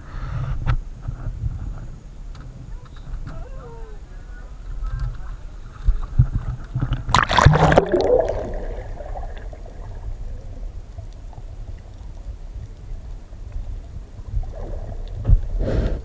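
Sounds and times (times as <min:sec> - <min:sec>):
steady low rumble: 0:04.0 - 0:15.6
water splashing and gurgling: 0:05.9 - 0:15.6.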